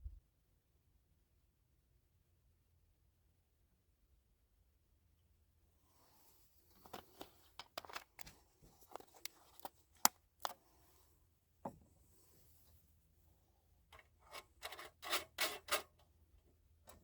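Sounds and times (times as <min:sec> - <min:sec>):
small objects clicking and knocking: 0:06.8 - 0:10.6.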